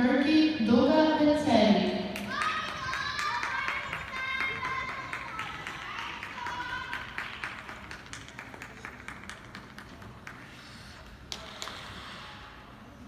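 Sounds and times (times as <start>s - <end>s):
audience clapping: 2.2s - 11.4s.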